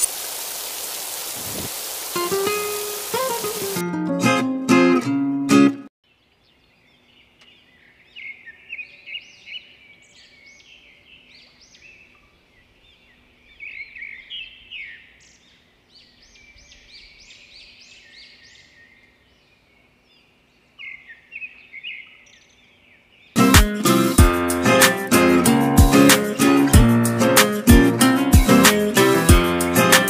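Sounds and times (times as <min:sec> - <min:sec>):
birds chirping: 0:06.1 - 0:24.1.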